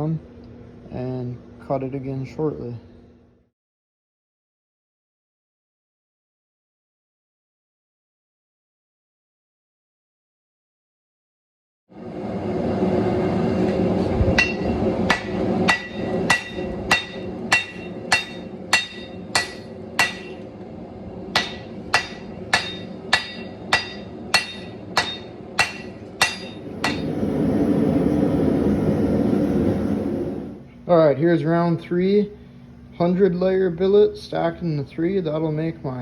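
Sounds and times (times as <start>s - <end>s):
steady rushing noise: 11.9s - 30.6s
hammer ringing on anvil: 14.4s - 20.4s, 21.3s - 27.0s.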